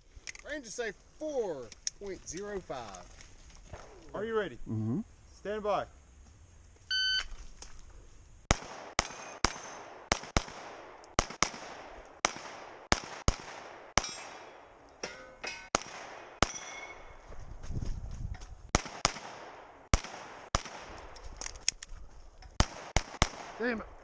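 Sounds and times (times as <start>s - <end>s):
pistol shots: 8.5s - 14.6s, 15.7s - 17.0s, 18.7s - 21.0s, 22.6s - 23.7s
steel targets ringing: 16.4s - 17.2s.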